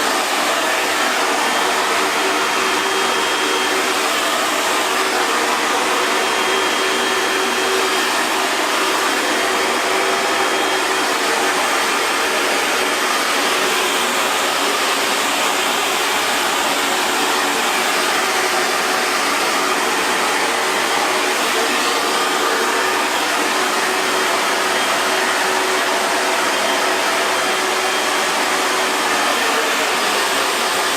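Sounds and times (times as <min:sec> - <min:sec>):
hair dryer running: 0:00.0 - 0:30.9.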